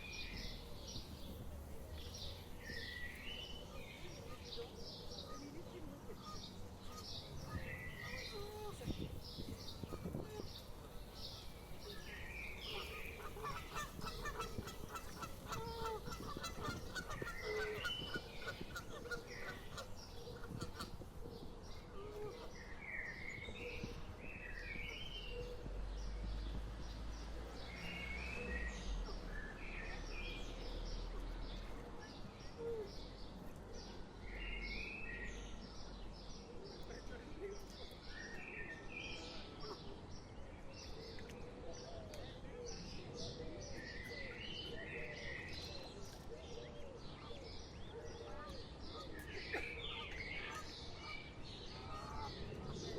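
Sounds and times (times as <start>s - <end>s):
wild birds calling: 2.5s - 26.1s.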